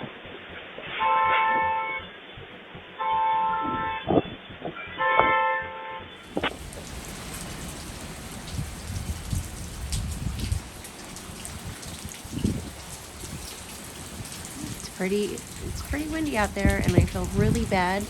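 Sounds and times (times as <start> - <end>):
steady rain falling: 6.2 - 18.0
wind rumbling on microphone: 6.3 - 18.0.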